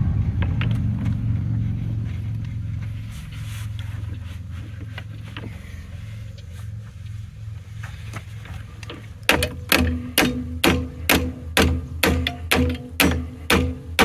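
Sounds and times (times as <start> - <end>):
steady low hum: 0.0 - 14.0
hammer blows on steel: 9.3 - 14.0.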